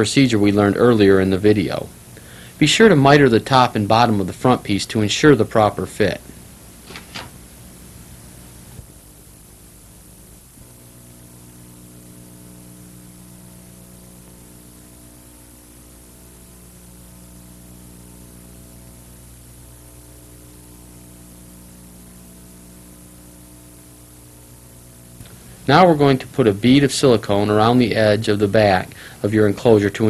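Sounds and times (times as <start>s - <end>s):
background hiss: 0.0s - 30.0s
electrical mains hum: 0.0s - 30.0s.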